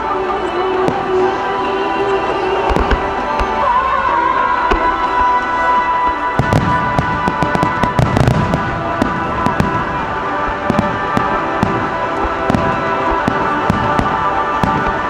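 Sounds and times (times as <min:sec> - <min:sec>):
music with long held tones: 0:00.0 - 0:15.0
fireworks bangs and crackles: 0:00.5 - 0:15.0
deep fireworks booms: 0:04.6 - 0:15.0.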